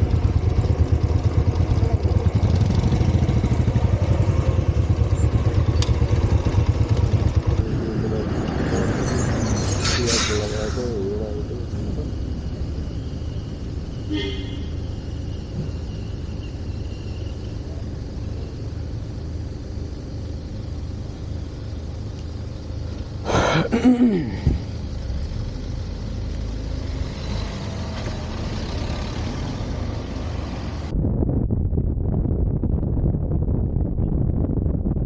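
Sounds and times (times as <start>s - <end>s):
motorcycle engine rumble: 0.0s - 27.0s
wind: 0.0s - 35.0s.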